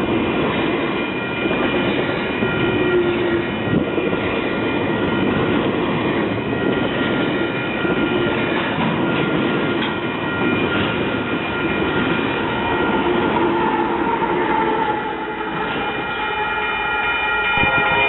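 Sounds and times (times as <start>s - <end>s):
train rumbling past: 0.0s - 18.0s
high ringing tones: 0.9s - 18.0s.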